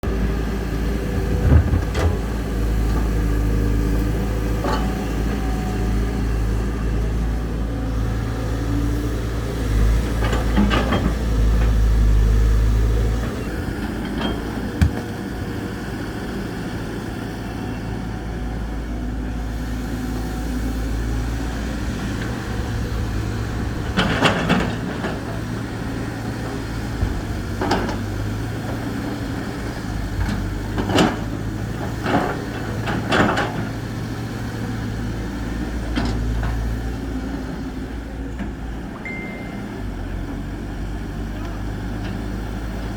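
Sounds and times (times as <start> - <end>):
excavator diesel engines under load: 0.0 - 42.9
machinery clanks and knocks: 1.0 - 3.2, 10.1 - 11.8, 13.2 - 15.8, 23.8 - 33.9.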